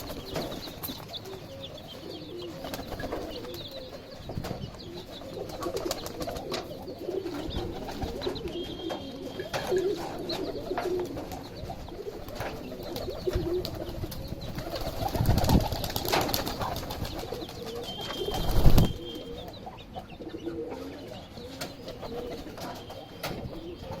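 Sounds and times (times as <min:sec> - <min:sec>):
chick peeps: 0:00.0 - 0:24.0.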